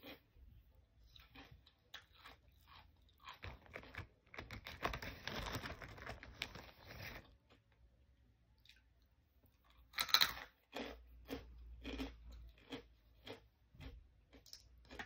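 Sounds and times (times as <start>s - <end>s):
person chewing crunchy food: 0.0s - 5.8s, 9.6s - 15.0s.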